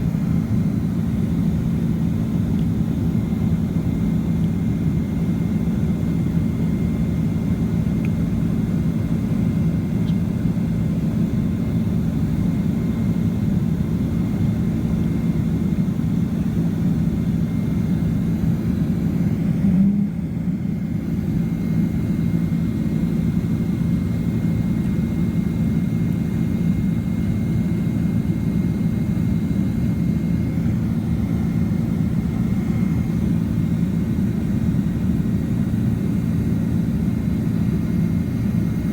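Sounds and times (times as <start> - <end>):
jet engine and airflow drone: 0.0 - 38.9
faint high whine: 17.2 - 38.8.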